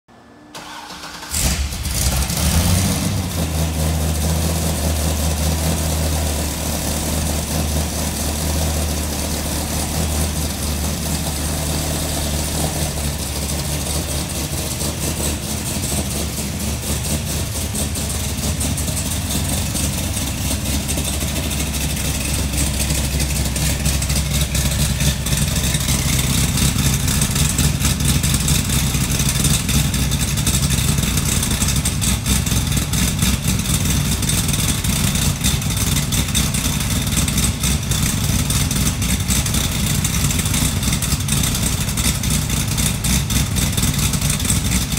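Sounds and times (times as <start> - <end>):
engine starting and idling: 0.4 - 44.9
engine cranking: 0.6 - 2.5.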